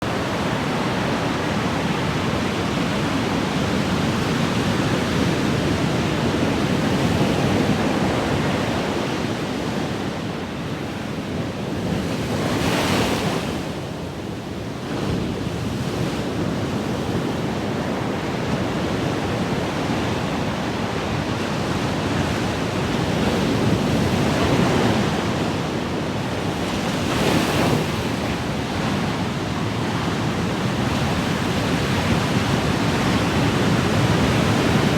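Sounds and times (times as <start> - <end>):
ocean waves breaking: 17.5 - 34.9.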